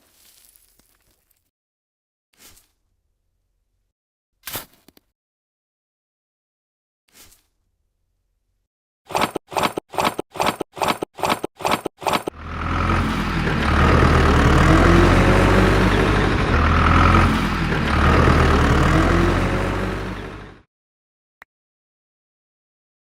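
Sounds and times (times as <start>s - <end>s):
engine running: 10.4s - 20.7s.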